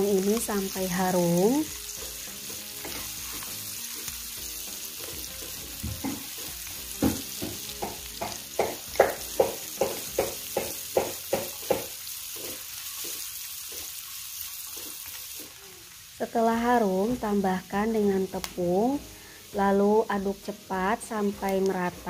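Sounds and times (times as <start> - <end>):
onion and garlic sizzling in pan: 0.0 - 22.0
spatula stirring in pan: 1.6 - 15.6.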